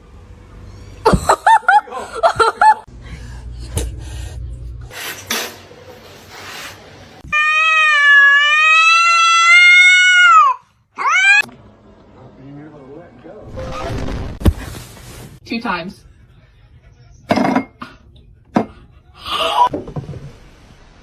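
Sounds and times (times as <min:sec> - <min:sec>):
cat yowling: 0:07.2 - 0:11.5.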